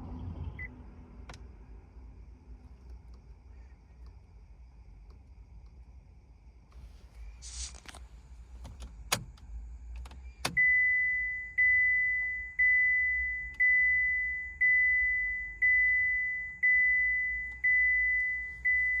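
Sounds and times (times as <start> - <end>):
car dashboard chime pinging: 10.4 - 19.0.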